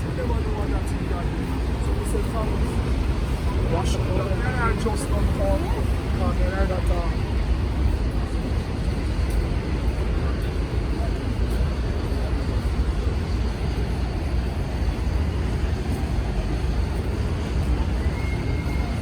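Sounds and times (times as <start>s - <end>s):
subway train rumbling: 0.0s - 19.0s.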